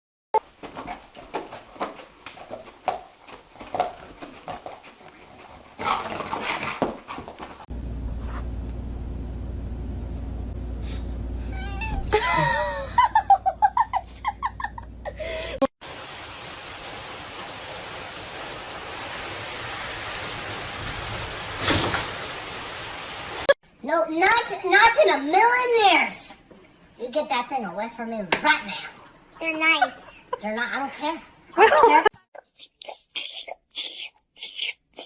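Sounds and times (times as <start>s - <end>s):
steady low hum: 7.7s - 15.6s
pet crying out: 11.5s - 12.2s.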